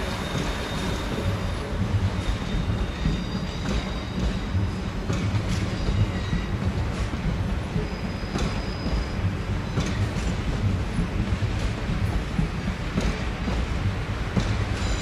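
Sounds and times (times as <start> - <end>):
high thin wheel squeals: 0.0 - 4.5, 7.8 - 9.2
train low rumble: 0.0 - 15.0.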